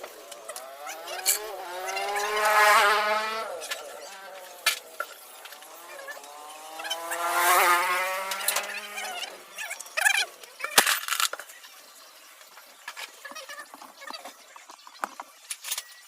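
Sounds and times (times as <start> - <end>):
power tool buzzing whine: 0.1 - 9.5
metal parts clanking: 0.6 - 1.5, 10.7 - 11.5.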